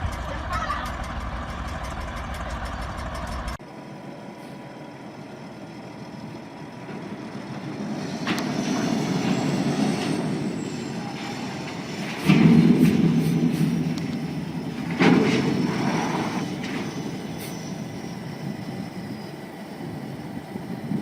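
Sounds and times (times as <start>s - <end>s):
quieter vehicle rumble: 0.0s - 18.1s
heavy vehicle rumble: 0.0s - 21.0s.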